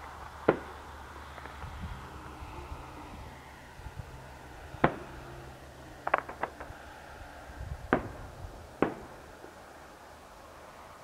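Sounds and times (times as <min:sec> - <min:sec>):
distant fireworks bangs: 0:00.0 - 0:02.6, 0:04.0 - 0:07.0, 0:07.8 - 0:09.8.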